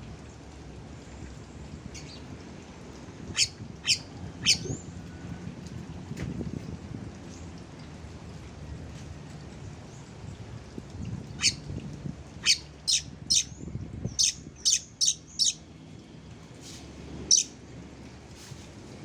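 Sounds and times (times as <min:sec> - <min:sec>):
bird giving harsh calls: 0:03.4 - 0:04.7, 0:17.3 - 0:17.5.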